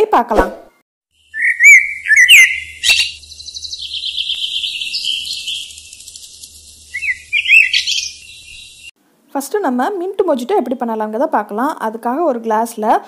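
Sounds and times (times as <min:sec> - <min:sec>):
wavering bird chirps: 0:01.2 - 0:09.0
chattering bird trill: 0:01.3 - 0:08.9.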